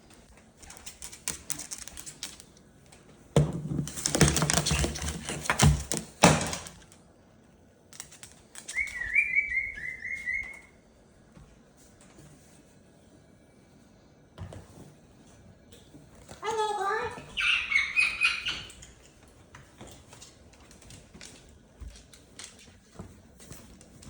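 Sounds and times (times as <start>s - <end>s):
bird scuffling with toy: 0.6s - 2.6s, 3.8s - 7.0s, 7.9s - 10.6s
high rising bird chirps: 8.7s - 10.8s, 17.4s - 18.8s.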